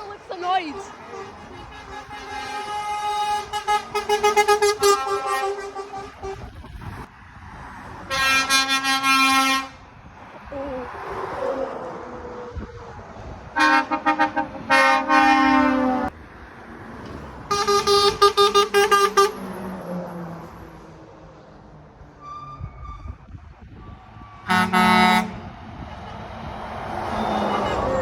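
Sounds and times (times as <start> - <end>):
lorry air horns: 0.0 - 6.7, 8.1 - 9.8, 13.6 - 16.1, 24.5 - 25.4
truck engines: 0.0 - 28.0.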